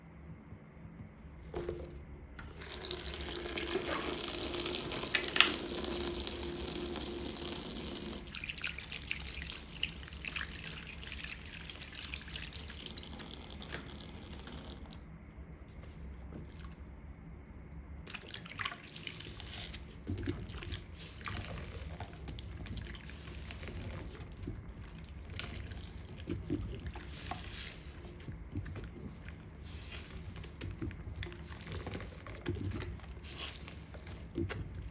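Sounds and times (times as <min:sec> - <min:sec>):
wet sponges squelching: 0:02.4 - 0:13.9, 0:18.1 - 0:34.9
tap water running into sink: 0:02.4 - 0:15.0.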